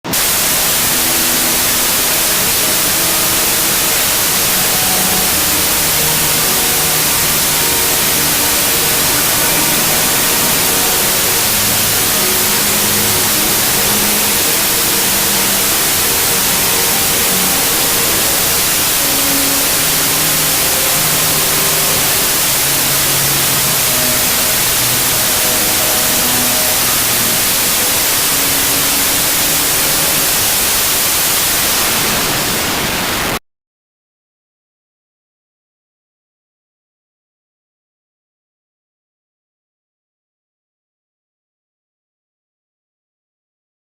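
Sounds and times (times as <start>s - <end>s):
loud static hiss: 0.0s - 33.4s
faint short musical notes: 0.5s - 30.7s.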